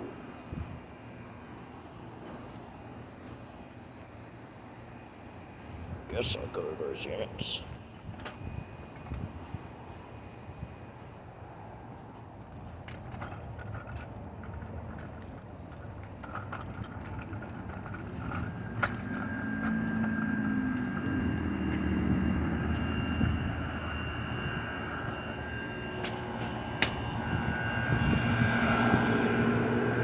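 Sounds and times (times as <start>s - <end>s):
air conditioner hum: 6.0s - 7.7s
faint steady tones: 17.9s - 30.0s.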